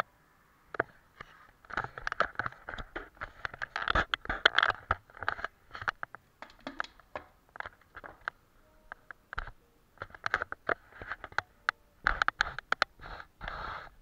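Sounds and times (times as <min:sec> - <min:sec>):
painting tools scraping: 0:12.0 - 0:14.0.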